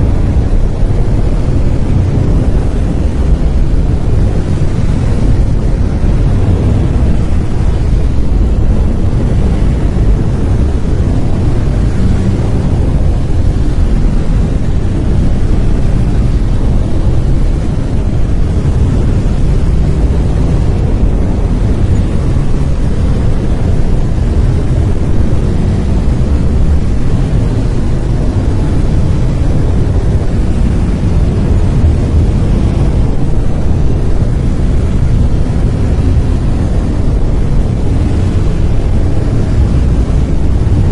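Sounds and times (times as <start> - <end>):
deep steady hiss: 0.0 - 40.9.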